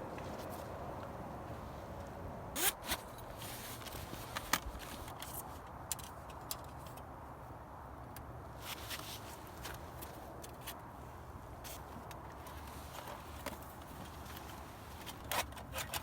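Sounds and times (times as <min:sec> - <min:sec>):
faint steady background noise: 0:00.0 - 0:16.0
sharp clicks and small scrapes: 0:02.6 - 0:07.1, 0:11.6 - 0:16.0.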